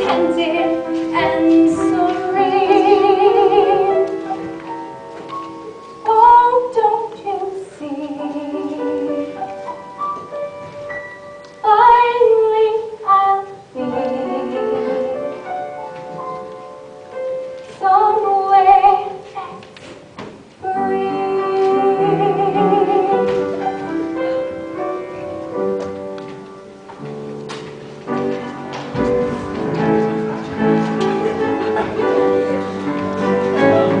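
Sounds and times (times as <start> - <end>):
piano and instrumental accompaniment: 0.0 - 34.0
woman singing slowly: 20.6 - 23.3.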